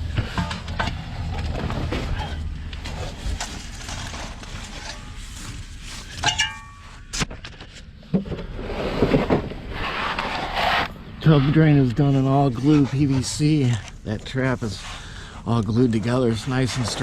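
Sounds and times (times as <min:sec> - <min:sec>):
scraping and rustling: 0:00.1 - 0:17.0
metallic clink: 0:06.2 - 0:06.9.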